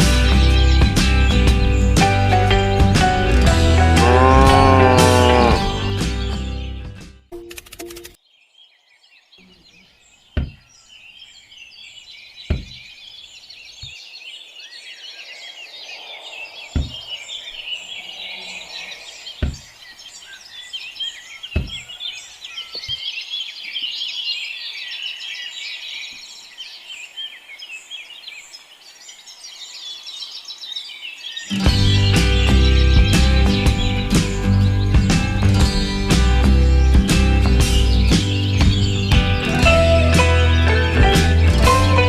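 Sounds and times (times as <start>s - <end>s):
small birds chirping: 0.0s - 42.0s
sharp knocks: 10.4s - 10.6s, 12.5s - 12.8s, 16.7s - 17.1s, 19.4s - 19.7s, 21.6s - 21.8s.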